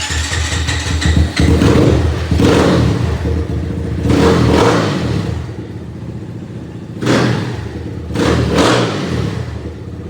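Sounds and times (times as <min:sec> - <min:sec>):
dirt bike engine revving: 0:00.0 - 0:03.3.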